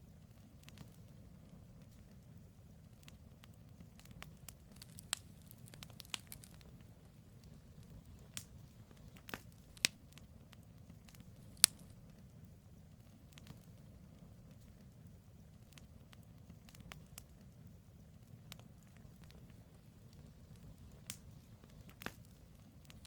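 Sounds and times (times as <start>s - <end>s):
campfire crackling and popping: 0.0s - 23.0s
low fire rumble: 0.0s - 23.0s.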